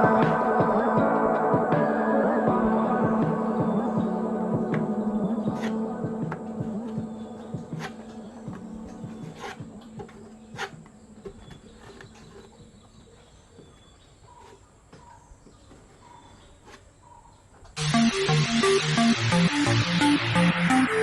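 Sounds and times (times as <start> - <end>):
electronic dance music: 0.0 - 9.8, 17.8 - 21.0.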